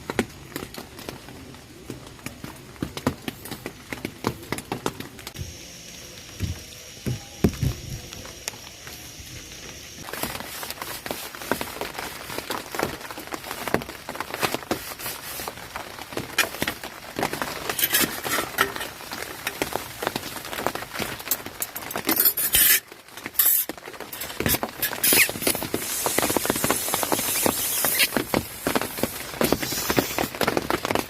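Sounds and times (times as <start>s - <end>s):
rain drops tapping on tent: 0.0s - 31.0s
rain hiss: 0.0s - 31.0s.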